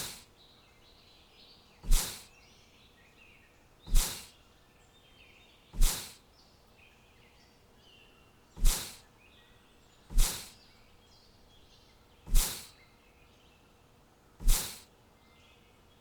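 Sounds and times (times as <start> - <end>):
loud swishing bursts: 0.0 - 0.2, 1.8 - 2.3, 3.9 - 4.3, 5.8 - 6.2, 8.6 - 9.0, 10.1 - 10.5, 12.3 - 12.7, 14.4 - 14.8
faint bird chirping: 0.0 - 16.0.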